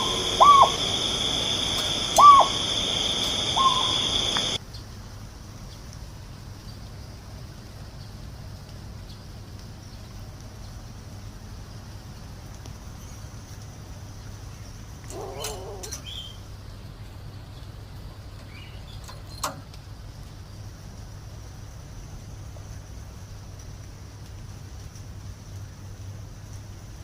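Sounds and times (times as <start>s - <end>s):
faint bird chirps: 0.0s - 4.6s
steady low hum: 0.0s - 4.6s
wavering animal call: 0.0s - 4.6s.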